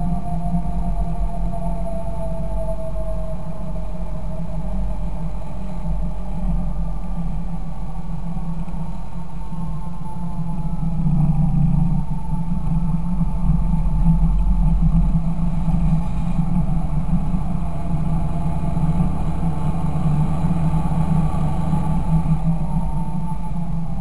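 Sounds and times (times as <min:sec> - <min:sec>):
tractor diesel engine droning: 0:09.6 - 0:24.0.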